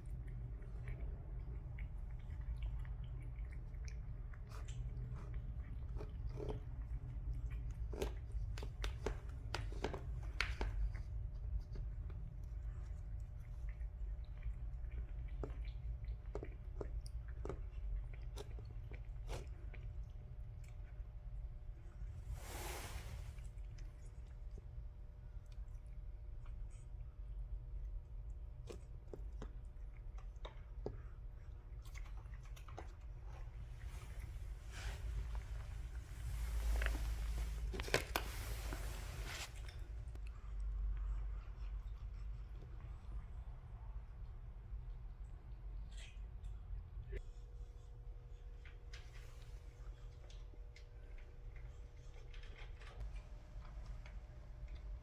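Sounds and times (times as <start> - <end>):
cat chewing food: 0.0 - 55.0
low steady rumble: 0.0 - 55.0
cat crunching food: 0.1 - 21.2, 35.1 - 38.9
steady low rumble: 31.4 - 41.5.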